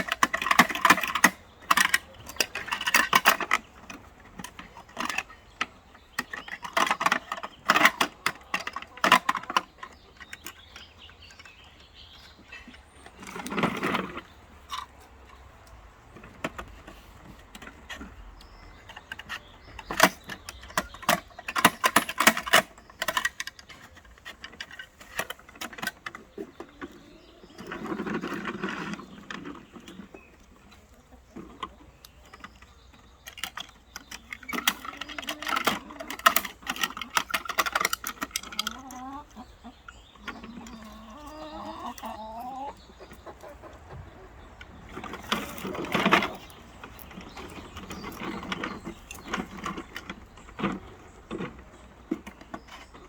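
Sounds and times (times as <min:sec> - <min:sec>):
garbage truck clattering clicks: 0:00.0 - 0:11.6, 0:15.6 - 0:30.1, 0:31.4 - 0:42.4.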